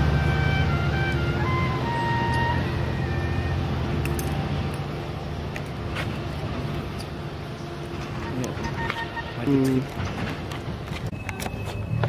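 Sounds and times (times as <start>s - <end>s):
train engine rumble: 0.0s - 12.0s.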